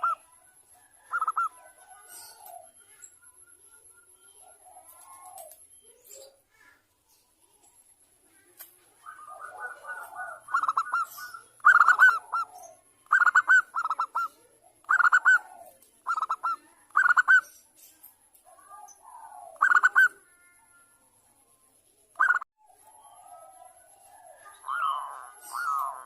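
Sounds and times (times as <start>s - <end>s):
dove trilling and cooing: 0.0s - 6.7s, 8.4s - 17.7s, 18.4s - 20.9s, 22.2s - 26.0s.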